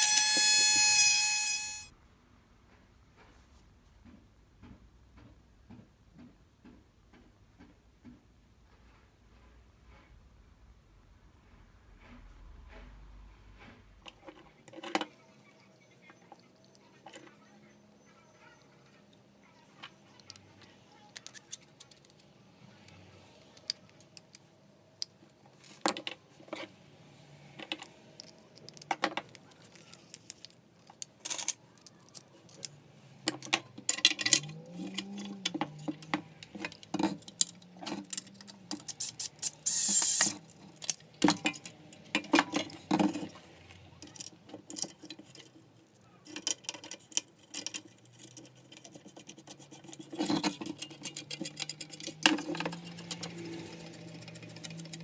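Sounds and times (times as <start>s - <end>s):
loud scrape: 0.0s - 1.9s
small metal parts clinking: 0.0s - 1.9s, 28.2s - 43.4s, 44.0s - 55.0s
small motor whirring: 0.0s - 1.9s, 39.0s - 40.4s.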